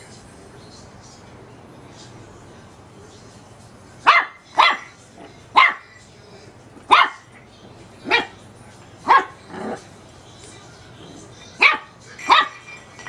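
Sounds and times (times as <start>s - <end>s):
puppy barking: 4.0s - 6.0s, 6.9s - 8.4s, 9.0s - 9.8s, 11.6s - 12.6s.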